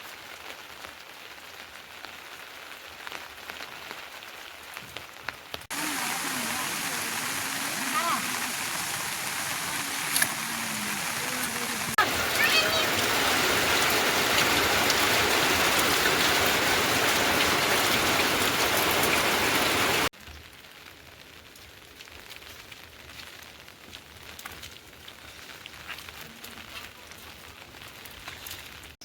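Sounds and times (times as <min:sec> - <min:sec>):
rain dripping: 0:00.0 - 0:29.0
heavy rain pouring: 0:00.2 - 0:23.2.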